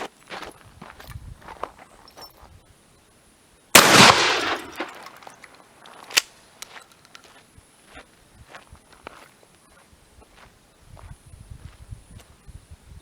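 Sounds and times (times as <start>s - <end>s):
shotgun blast: 3.8s - 5.2s.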